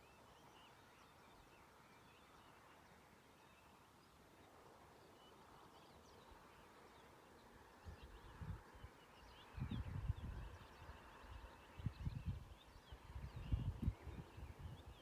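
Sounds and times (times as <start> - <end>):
faint bird chirps: 0.0 - 15.0
wind rumbling on microphone: 7.8 - 15.0.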